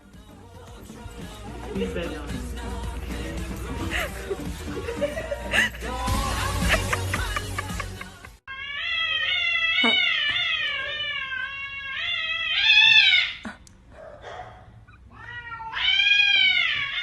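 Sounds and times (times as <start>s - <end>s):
cat yowling: 8.5s - 13.4s, 15.0s - 17.0s.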